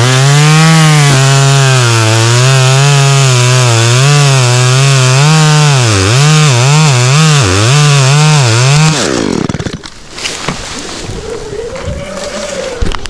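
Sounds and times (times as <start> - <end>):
chainsaw running at high revs: 0.0 - 9.8.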